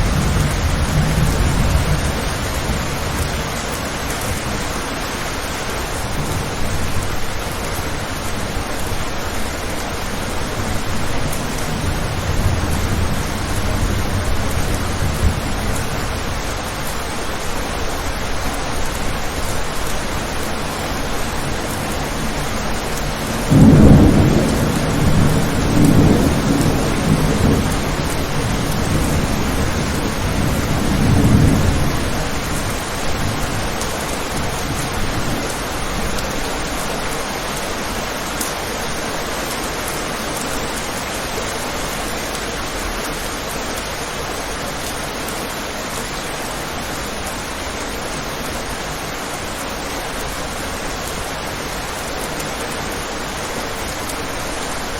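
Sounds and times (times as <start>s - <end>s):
thunder rumbling: 0.0s - 37.0s
rain falling on a window: 0.0s - 54.9s.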